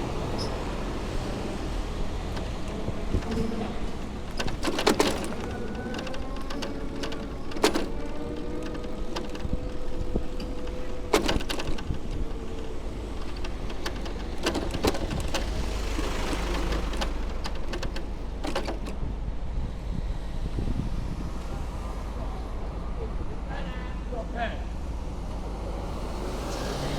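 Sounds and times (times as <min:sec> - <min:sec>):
steady street hum: 0:00.0 - 0:26.9
bicycle rattles and clicks: 0:00.2 - 0:19.3
hiss of wet street: 0:24.8 - 0:26.9.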